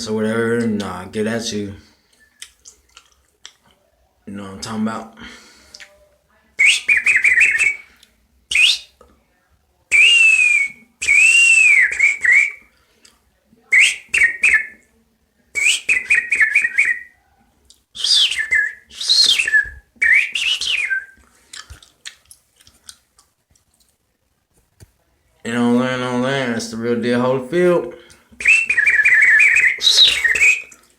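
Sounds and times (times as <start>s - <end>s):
man whistling bird calls: 6.6s - 7.8s, 8.5s - 8.9s, 9.9s - 12.6s, 15.6s - 17.1s, 18.0s - 21.2s, 28.4s - 30.8s.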